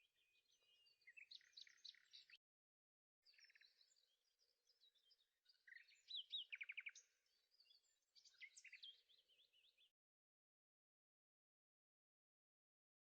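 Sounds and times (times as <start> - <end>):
songbirds chirping and warbling: 0.0 - 2.4, 3.2 - 10.1.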